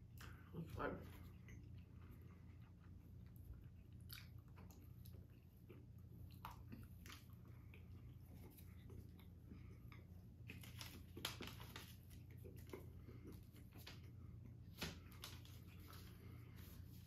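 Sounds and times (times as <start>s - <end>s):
chewing chocolate: 0.0s - 16.5s
steady low hum: 0.0s - 17.0s
small clicks and crackles: 10.4s - 14.1s.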